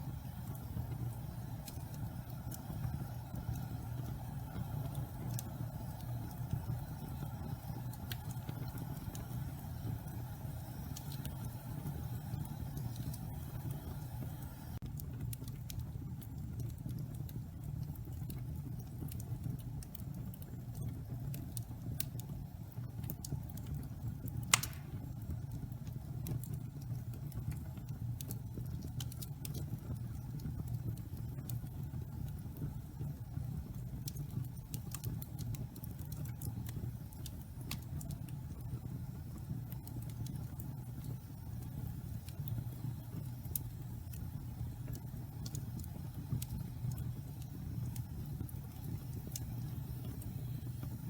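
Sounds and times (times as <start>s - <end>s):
flames rushing: 0.0s - 17.1s, 24.3s - 25.7s
fire crackling and popping: 0.0s - 51.0s.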